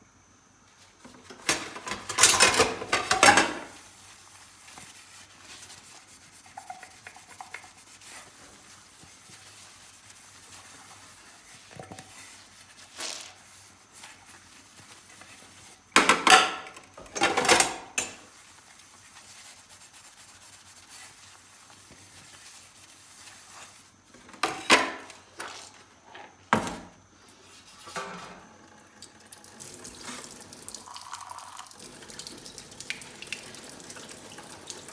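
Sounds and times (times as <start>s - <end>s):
sponge scrubbing dishes: 1.3s - 25.8s
dishes and cutlery clinking: 1.4s - 3.8s.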